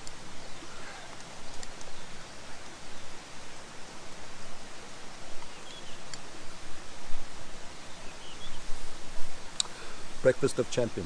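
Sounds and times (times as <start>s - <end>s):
rushing outdoor background noise: 0.0s - 11.0s
light tick: 6.1s - 6.3s, 9.6s - 9.8s.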